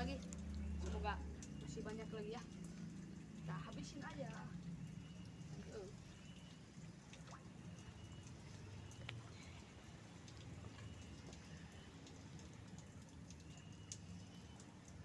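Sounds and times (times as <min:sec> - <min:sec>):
light ticks: 0:07.1 - 0:15.0.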